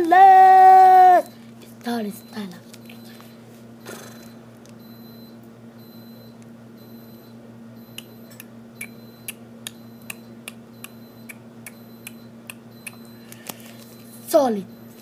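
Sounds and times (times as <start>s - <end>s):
steady low hum: 0.0s - 15.0s
chewing with smacking clicks: 7.9s - 13.1s.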